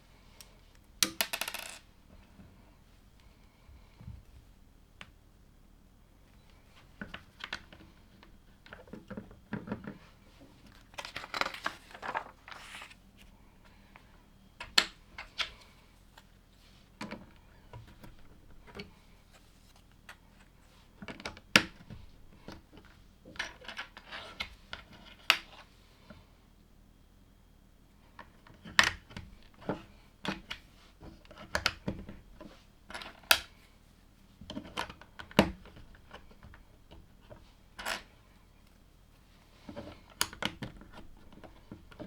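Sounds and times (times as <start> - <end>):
plastic bricks clicking together: 1.0 - 1.8
loose plastic pieces rustling: 10.7 - 13.0.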